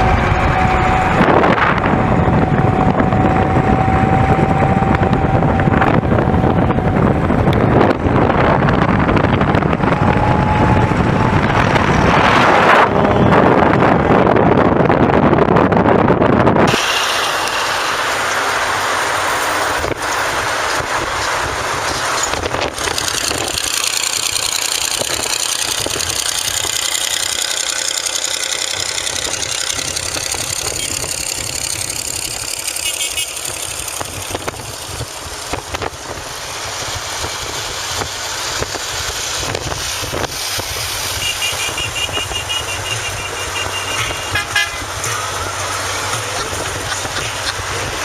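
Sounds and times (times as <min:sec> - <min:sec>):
motor vehicle running: 0:00.0 - 0:48.0
road noise: 0:00.0 - 0:48.0
horn tooting short beeps: 0:41.2 - 0:44.8.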